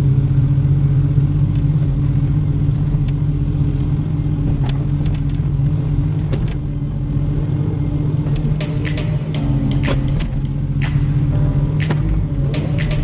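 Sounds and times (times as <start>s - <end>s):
excavator diesel engine humming: 0.0s - 13.0s.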